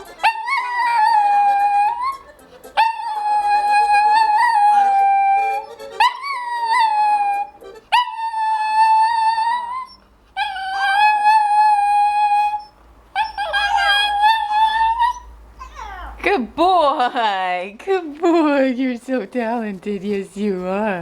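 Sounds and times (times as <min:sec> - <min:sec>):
dog howling: 0:00.2 - 0:16.2.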